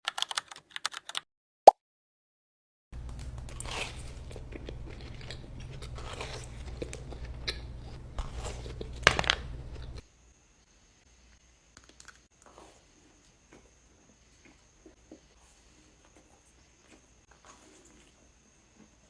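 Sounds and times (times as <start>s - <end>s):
person chewing donuts: 3.0s - 10.1s
steady low hum: 3.0s - 11.6s.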